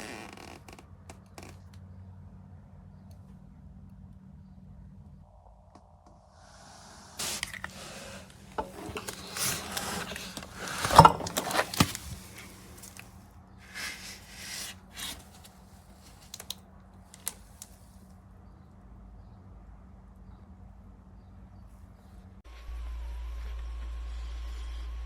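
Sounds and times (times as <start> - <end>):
handling scrapes and rustles: 7.2 - 16.6.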